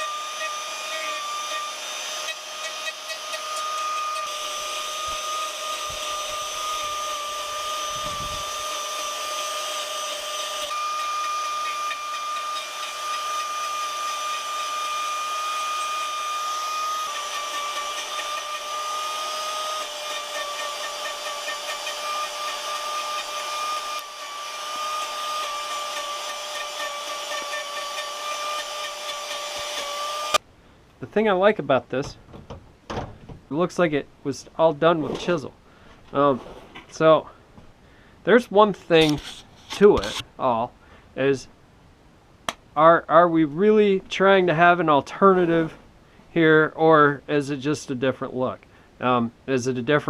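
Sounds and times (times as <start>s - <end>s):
power carving tool cutting wood: 0.0s - 30.4s, 39.0s - 40.2s.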